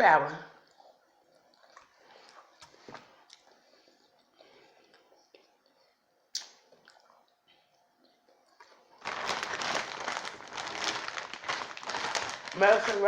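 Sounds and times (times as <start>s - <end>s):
packaging crinkling and rustling: 9.0s - 13.0s.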